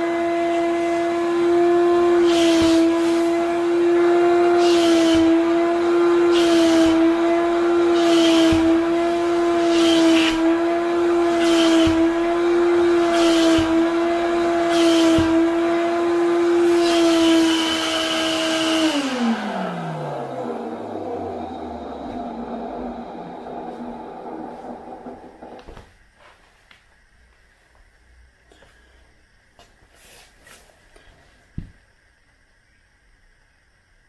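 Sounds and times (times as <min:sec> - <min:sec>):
vacuum cleaner motor whine: 0:00.0 - 0:26.4.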